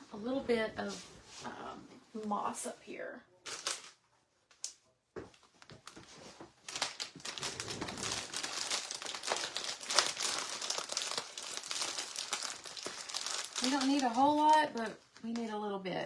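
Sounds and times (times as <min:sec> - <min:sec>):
dry moss crinkling and crackling: 0:06.6 - 0:15.6.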